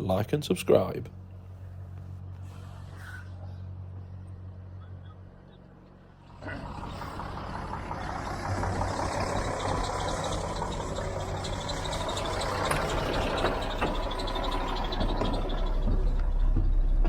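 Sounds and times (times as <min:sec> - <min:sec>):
truck diesel engine running: 0:03.6 - 0:17.0.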